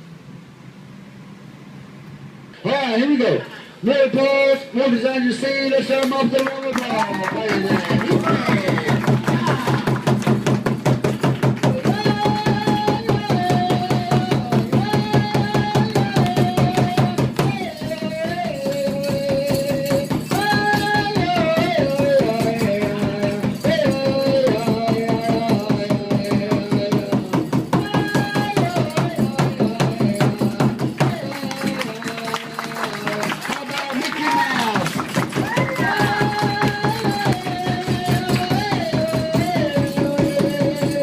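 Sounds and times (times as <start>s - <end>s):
fast steady drumbeat: 6.9s - 33.5s, 34.3s - 41.0s
person chanting a melody: 11.6s - 34.8s.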